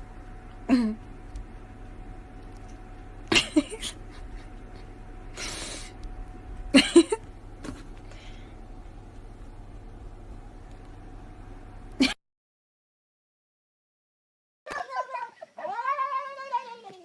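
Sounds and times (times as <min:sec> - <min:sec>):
breathy hiss: 0:05.3 - 0:06.0.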